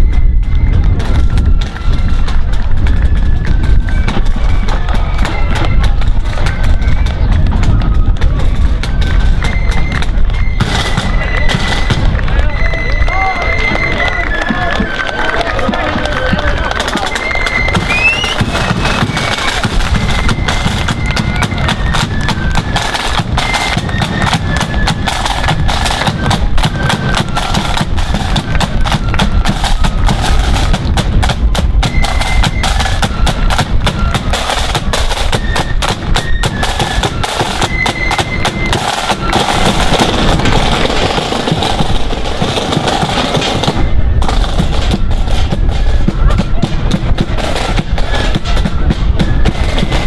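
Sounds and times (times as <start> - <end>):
flutes playing melody: 0.0 - 50.0
fast snare drumming: 15.6 - 50.0
bass drum beats: 17.6 - 50.0.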